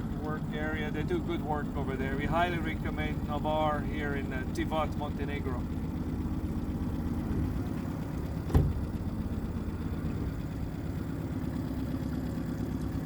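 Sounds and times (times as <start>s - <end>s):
outboard motor running: 0.0s - 13.0s
sharp thump: 8.4s - 9.0s.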